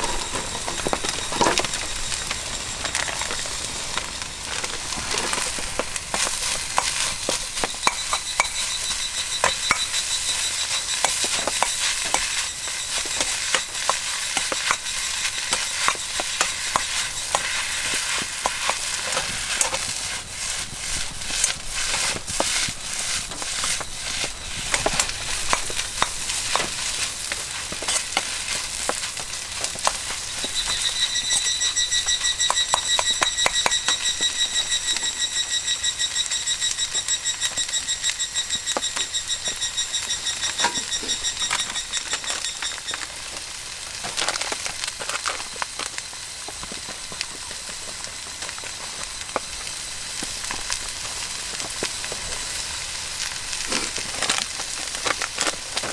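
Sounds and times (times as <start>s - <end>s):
spatula scraping a wok: 0.0s - 34.8s, 38.4s - 45.6s
fried rice sizzling in a wok: 0.0s - 55.9s.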